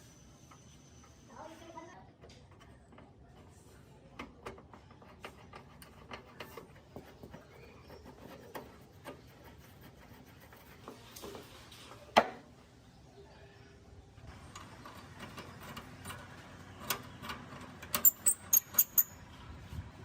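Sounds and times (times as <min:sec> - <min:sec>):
hand tools clicking and tapping: 0:14.6 - 0:19.2.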